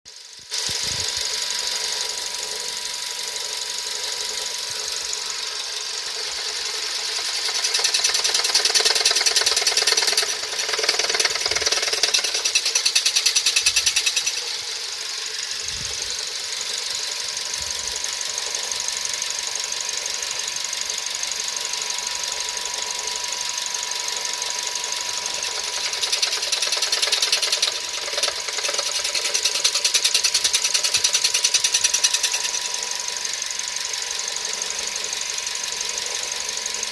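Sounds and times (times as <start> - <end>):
car engine running: 0.1 - 36.9
metallic ticking clatter: 5.3 - 15.0, 25.2 - 32.9.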